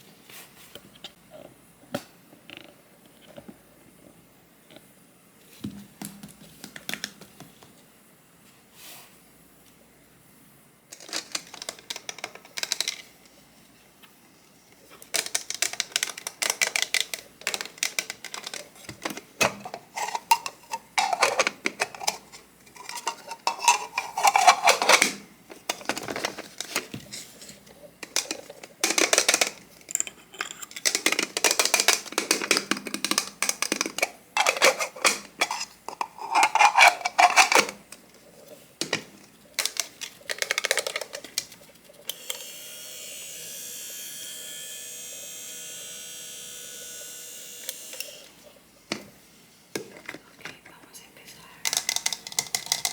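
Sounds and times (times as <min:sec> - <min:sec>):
dishes and utensils clattering: 0:16.5 - 0:26.8, 0:33.6 - 0:37.8.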